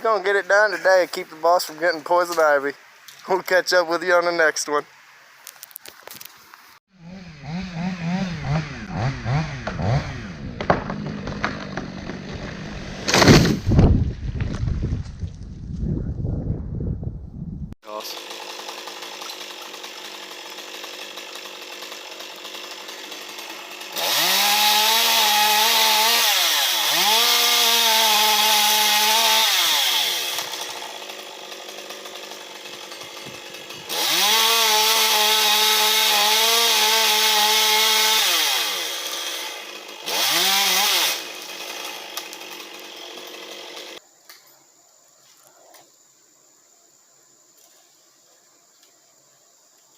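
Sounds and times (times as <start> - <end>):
chainsaw idling and revving: 6.9 - 13.4, 17.9 - 44.0.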